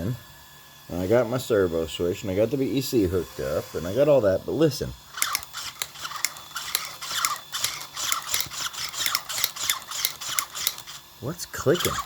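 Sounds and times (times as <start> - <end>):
falling whine from drive: 0.9 - 12.0
rc car drivetrain clicking: 5.1 - 11.0, 11.8 - 12.0.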